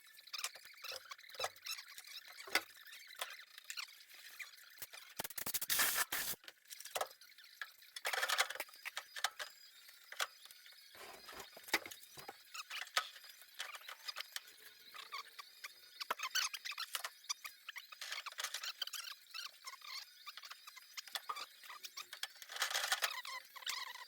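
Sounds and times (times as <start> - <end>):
welder crackling and sputtering: 3.2 - 7.1.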